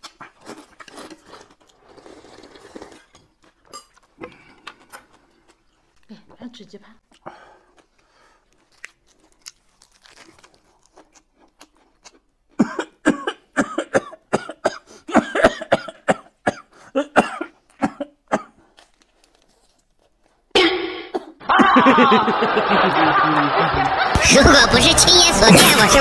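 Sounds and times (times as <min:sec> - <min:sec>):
person coughing: 0:12.6 - 0:18.6, 0:20.5 - 0:21.8
loud music: 0:23.7 - 0:26.0.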